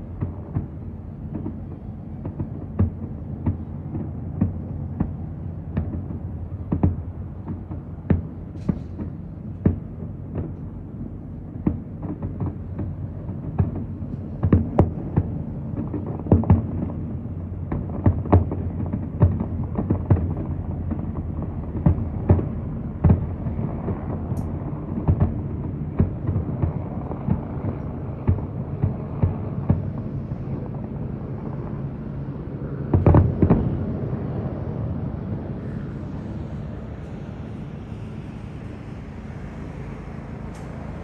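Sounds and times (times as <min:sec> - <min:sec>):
fireworks booming: 0:00.0 - 0:30.9, 0:32.9 - 0:33.8
low rumble: 0:00.0 - 0:41.0.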